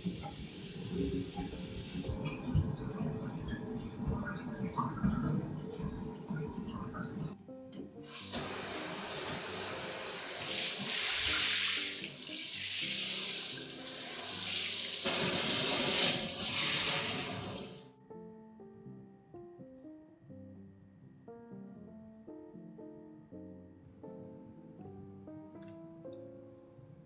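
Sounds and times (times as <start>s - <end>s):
water running in a stream: 0.0s - 7.3s
soft background music: 0.0s - 27.0s.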